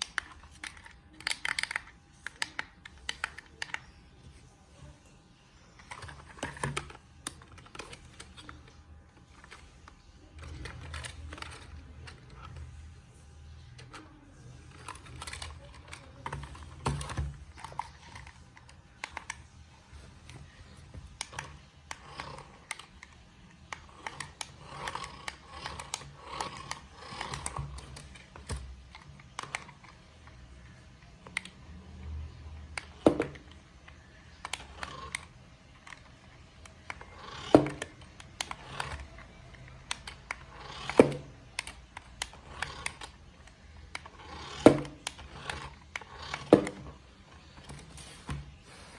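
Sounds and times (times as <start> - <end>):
plastic toy car clicks and taps: 0.0 - 3.9, 14.7 - 19.4, 32.7 - 43.2, 43.9 - 47.0.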